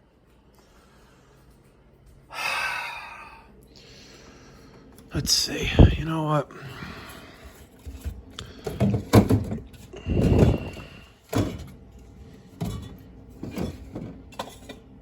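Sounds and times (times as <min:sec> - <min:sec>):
objects knocking and thudding: 0:07.8 - 0:11.8, 0:12.6 - 0:14.8.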